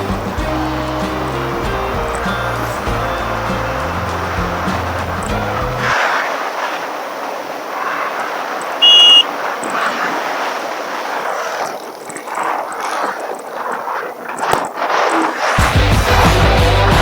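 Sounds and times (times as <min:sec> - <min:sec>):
traffic: 0:00.0 - 0:06.0, 0:08.8 - 0:09.3
high-pitched beep: 0:08.8 - 0:09.3.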